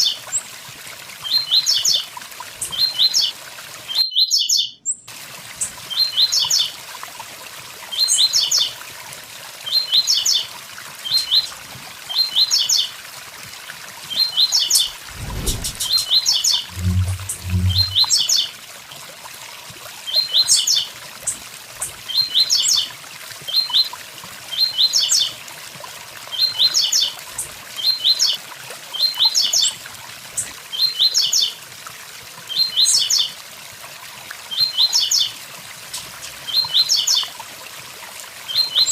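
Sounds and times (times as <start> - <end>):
waterfall rushing: 14.8 - 18.2
short low hums: 14.9 - 16.0, 16.7 - 18.2
low thump: 15.0 - 16.0, 16.7 - 18.0.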